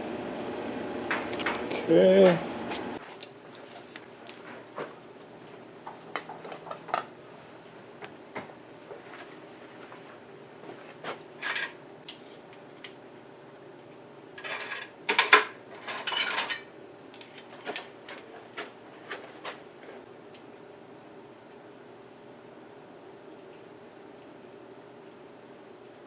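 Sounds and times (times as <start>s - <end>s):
faint steady hum: 0.0s - 26.0s
metal tools clinking and rattling: 11.4s - 11.8s, 14.4s - 19.2s.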